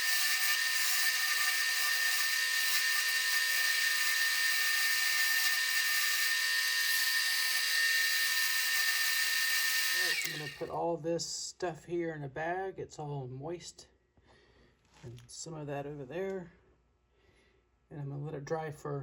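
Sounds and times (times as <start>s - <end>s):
wood lathe whining: 0.0s - 10.7s.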